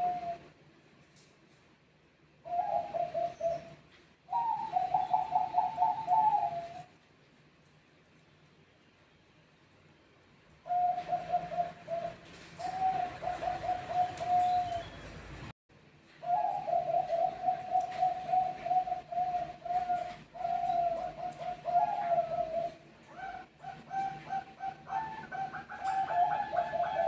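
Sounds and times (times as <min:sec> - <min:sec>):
doves cooing: 0:00.0 - 0:00.5, 0:02.4 - 0:07.0, 0:10.7 - 0:15.4, 0:16.2 - 0:27.0.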